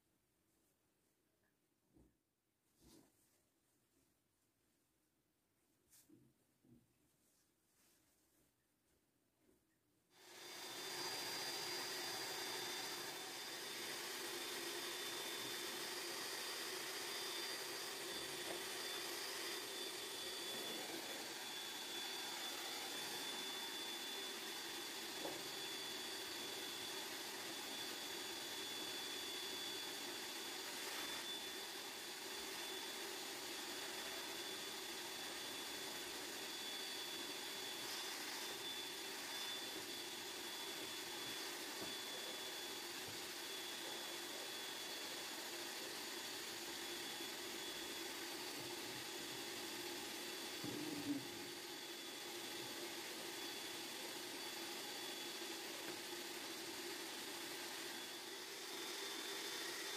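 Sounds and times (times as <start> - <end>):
motor whirring with high whine: 10.2 - 59.9.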